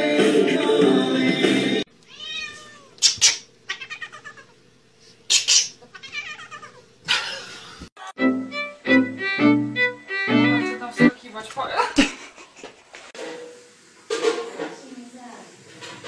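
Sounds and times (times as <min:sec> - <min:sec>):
cat meowing and yowling: 0:02.1 - 0:03.0, 0:03.7 - 0:04.5, 0:05.9 - 0:06.8.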